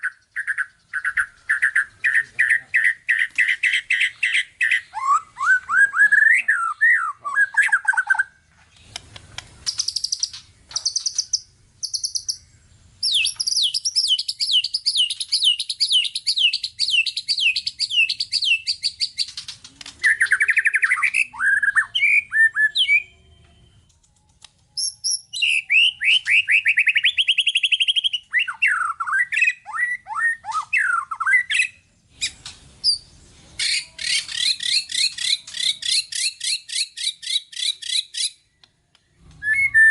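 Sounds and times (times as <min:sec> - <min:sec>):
songbird singing varied song: 0:00.0 - 0:39.9.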